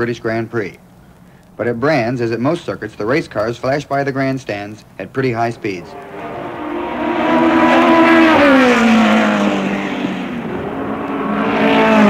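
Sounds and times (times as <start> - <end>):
race car engine passing: 5.2 - 12.0.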